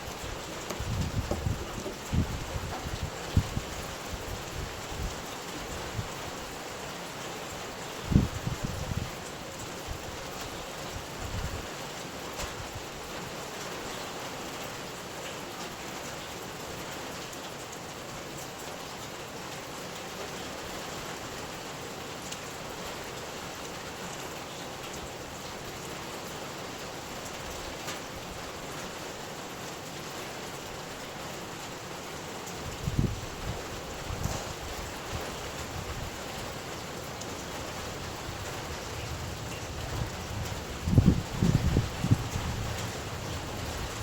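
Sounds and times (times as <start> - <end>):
raindrops ticking: 0.0 - 3.4
steady rain: 0.0 - 44.0.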